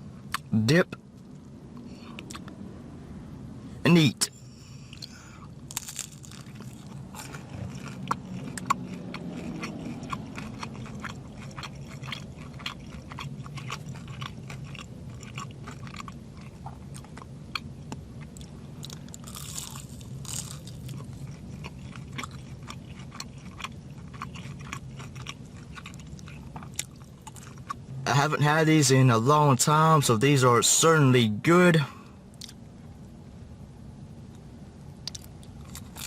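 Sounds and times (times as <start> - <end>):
low hum: 0.0 - 36.0
chewing crispy food: 4.6 - 27.8, 32.3 - 32.7, 35.0 - 36.0.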